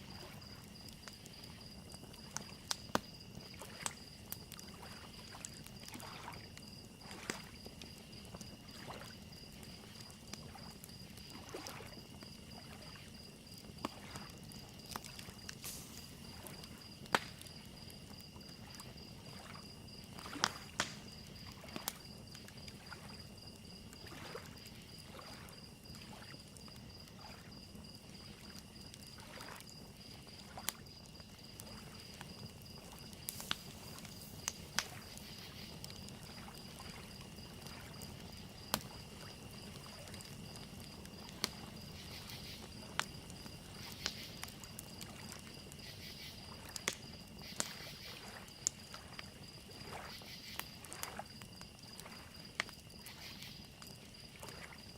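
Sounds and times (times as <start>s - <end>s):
wood fire crackling and popping: 0.0s - 54.8s
crickets chirping: 0.0s - 54.9s
lake waves lapping: 4.7s - 7.5s, 11.3s - 12.0s, 24.0s - 26.3s, 29.2s - 29.6s.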